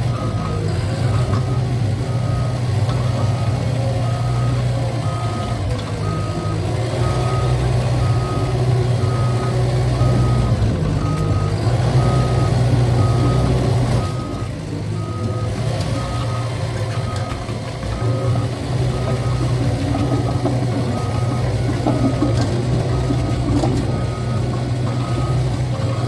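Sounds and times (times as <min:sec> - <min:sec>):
bulldozer diesel engine: 0:00.0 - 0:26.0
reverse alarm beeping: 0:03.2 - 0:16.4, 0:20.9 - 0:26.0.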